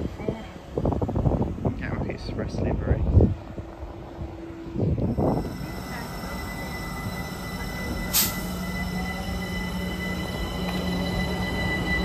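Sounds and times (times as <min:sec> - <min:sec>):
electric train running: 0:03.0 - 0:12.0
high whine: 0:03.6 - 0:12.0.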